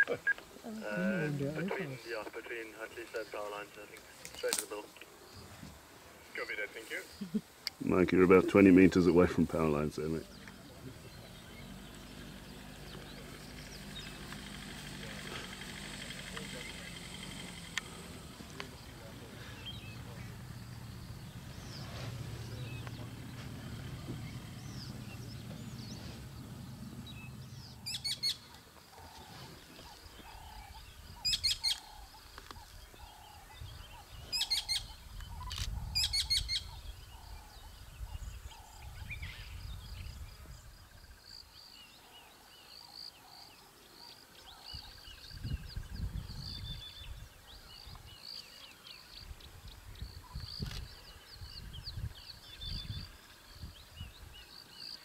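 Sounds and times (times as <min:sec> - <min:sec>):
birds chirping: 0:00.0 - 0:55.0
low hum: 0:10.2 - 0:28.6
soft repeated bird call: 0:10.3 - 0:39.4
sharp bursts of bird calls: 0:19.0 - 0:28.5.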